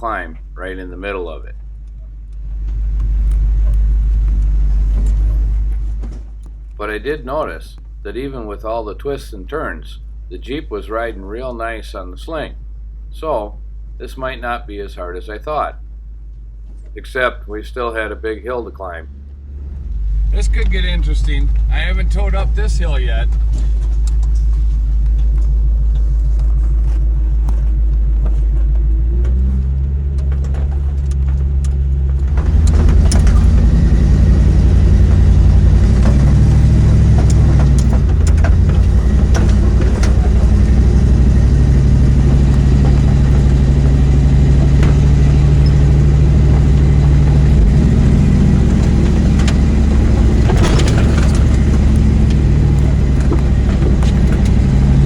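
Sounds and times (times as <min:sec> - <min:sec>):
knocks and rattles: 0:02.0 - 0:06.7, 0:20.4 - 0:55.0
truck engine pulling under load: 0:17.8 - 0:55.0.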